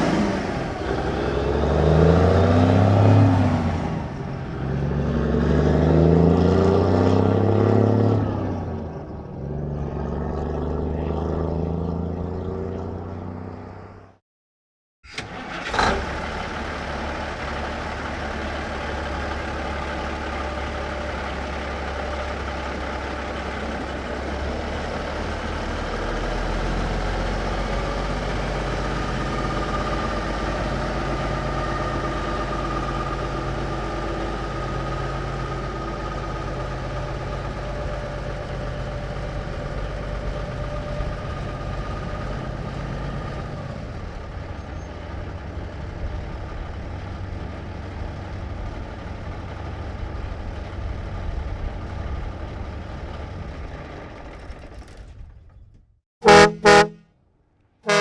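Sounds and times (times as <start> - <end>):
truck engine running: 15.1 - 43.1, 56.2 - 57.0.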